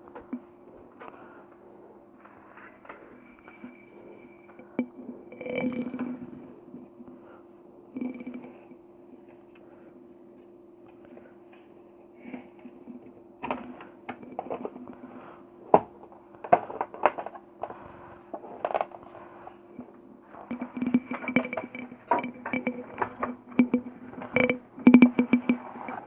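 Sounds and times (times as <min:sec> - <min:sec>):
steady low hum: 0:00.0 - 0:26.0
clicks and knocks of casing parts: 0:15.8 - 0:19.0.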